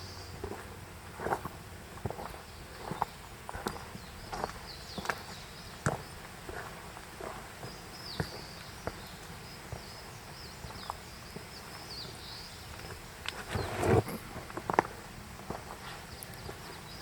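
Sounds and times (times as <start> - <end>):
footsteps on a trail: 0.3 - 17.0.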